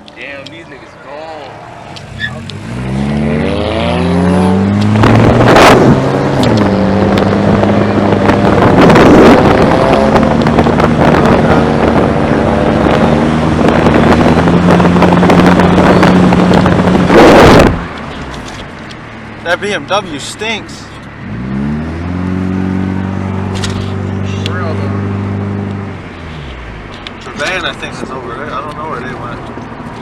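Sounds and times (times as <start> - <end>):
car engine running hard: 0.0 - 30.0
wind buffeting microphone: 3.7 - 18.0.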